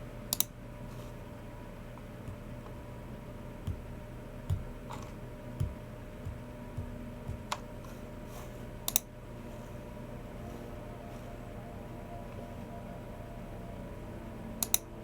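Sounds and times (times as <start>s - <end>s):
steady low hum: 0.0s - 15.0s
sharp mouse clicks: 0.3s - 0.6s, 8.9s - 9.1s
soft keyboard thuds: 3.7s - 8.0s.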